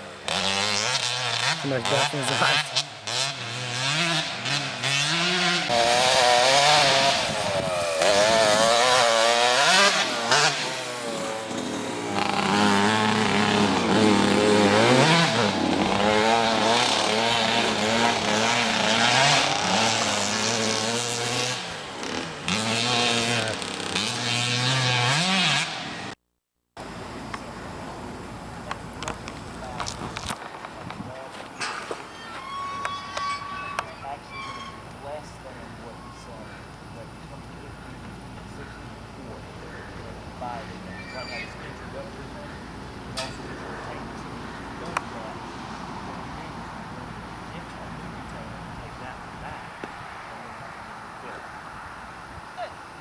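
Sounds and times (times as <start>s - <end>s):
motorbike engine revving: 0.0s - 26.2s, 36.2s - 49.8s.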